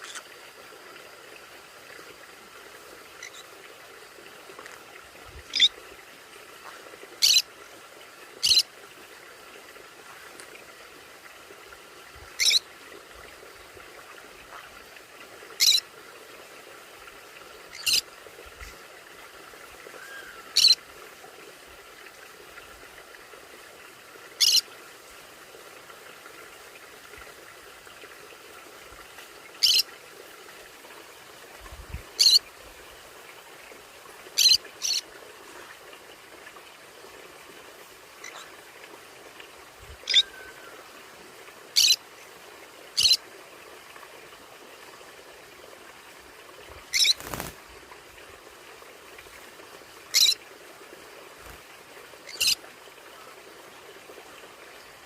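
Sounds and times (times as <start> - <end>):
faint steady hiss: 0.0 - 55.0
parrot squawking: 7.2 - 7.4, 12.4 - 12.6, 15.6 - 15.8, 29.6 - 29.8, 40.0 - 40.5, 41.8 - 42.0, 46.9 - 47.3, 50.2 - 50.4.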